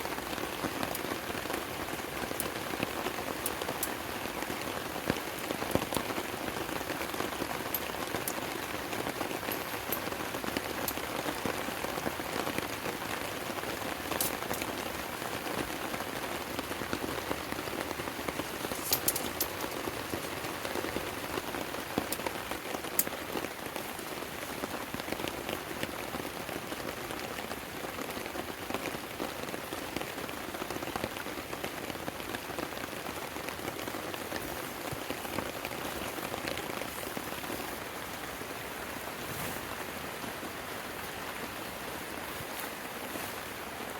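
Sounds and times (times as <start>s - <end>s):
heavy rain hiss: 0.0s - 43.9s
raindrop clicks: 0.4s - 24.1s.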